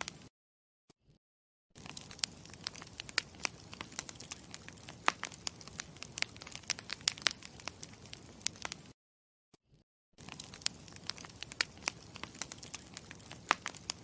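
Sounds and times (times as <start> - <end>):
campfire crackling: 1.8 - 8.9, 10.2 - 14.0.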